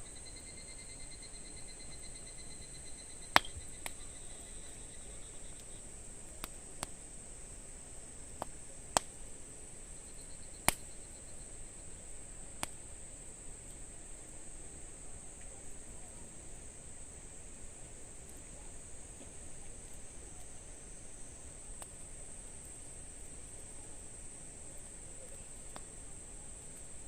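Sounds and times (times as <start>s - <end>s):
high-pitched insect trill: 0.0s - 5.9s, 9.9s - 11.7s
campfire crackling and popping: 3.3s - 9.9s, 10.5s - 14.6s, 19.2s - 27.0s.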